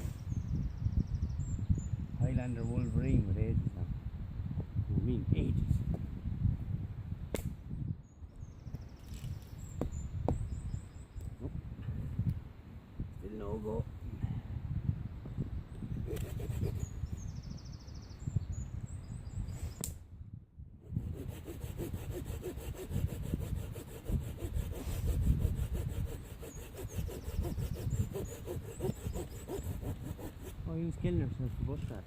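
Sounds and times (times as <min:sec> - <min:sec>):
hand saw cutting wood: 0:16.1 - 0:16.9, 0:20.9 - 0:30.6.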